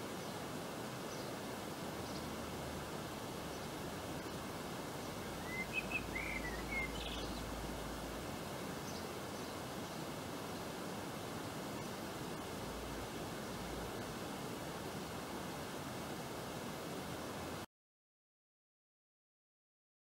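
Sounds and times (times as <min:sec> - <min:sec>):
outdoor background hiss: 0:00.0 - 0:17.7
small bird chirping: 0:05.0 - 0:07.5.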